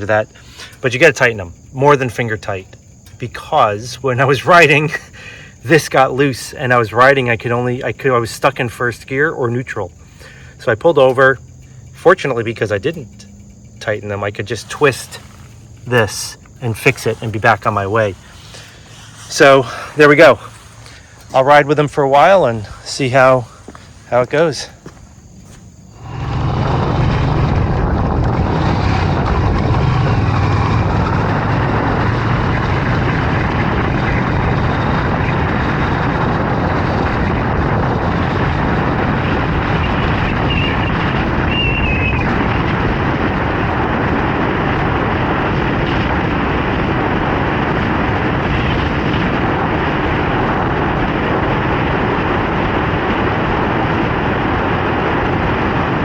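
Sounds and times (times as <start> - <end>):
wind rushing over microphone: 0.0 - 7.5, 11.8 - 56.0
motorcycle engine running: 13.1 - 55.9.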